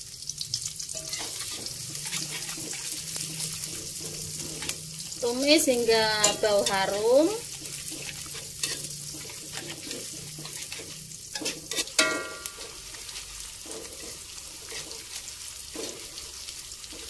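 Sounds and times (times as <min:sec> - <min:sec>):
shallots sizzling in hot oil: 0:00.0 - 0:17.0
metal spatula scraping wok: 0:00.8 - 0:17.0
spatula knocking against pan: 0:07.6 - 0:12.8.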